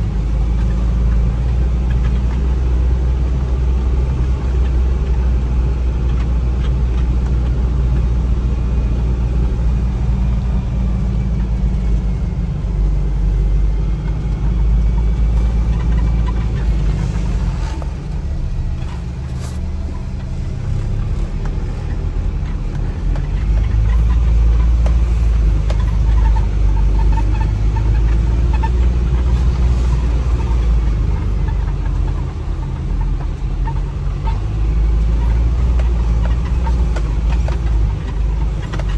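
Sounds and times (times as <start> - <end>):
vehicle engine and road rumble: 0.0 - 38.9.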